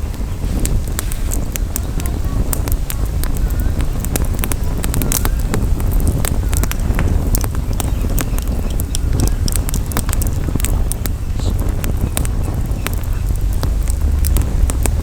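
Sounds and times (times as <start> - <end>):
campfire crackling and popping: 0.0 - 15.0
wind rumble on microphone: 0.0 - 15.0.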